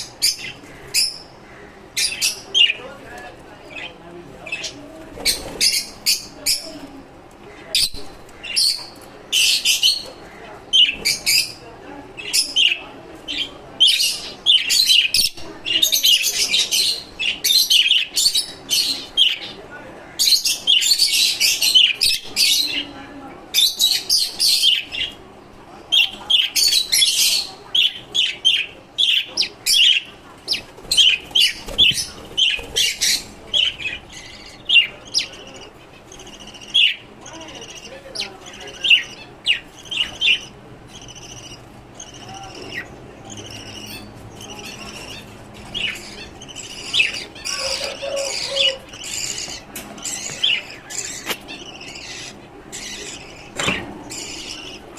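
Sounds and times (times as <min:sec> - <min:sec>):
birds chirping: 0:00.0 - 0:54.9.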